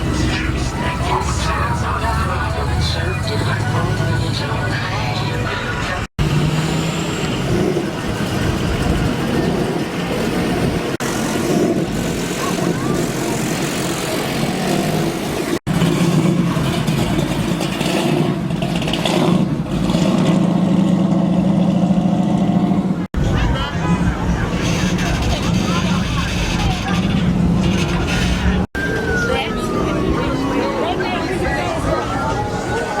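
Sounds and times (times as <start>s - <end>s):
voices: 0.0s - 6.1s, 12.0s - 15.0s, 23.2s - 33.0s
loud car engine: 0.0s - 33.0s.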